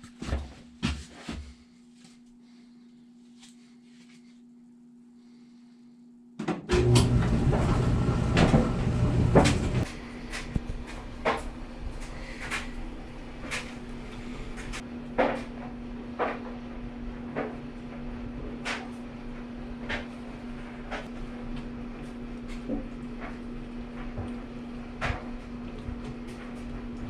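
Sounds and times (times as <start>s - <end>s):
dryer drum knocking: 6.4s - 12.1s
clothes dryer running: 6.4s - 27.0s.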